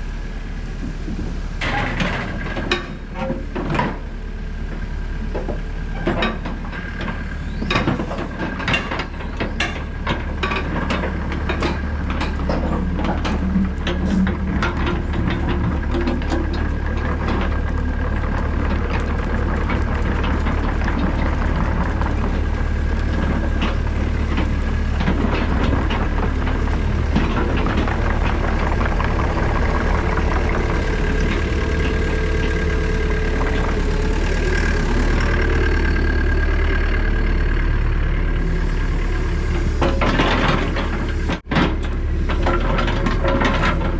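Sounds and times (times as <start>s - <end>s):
excavator diesel engine: 0.0s - 43.9s
high whine: 27.0s - 41.4s.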